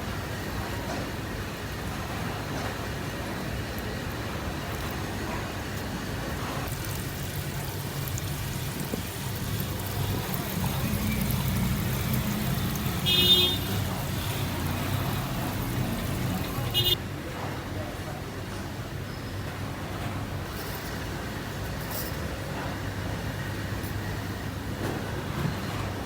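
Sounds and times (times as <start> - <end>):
vehicle engine running: 6.7 - 17.0.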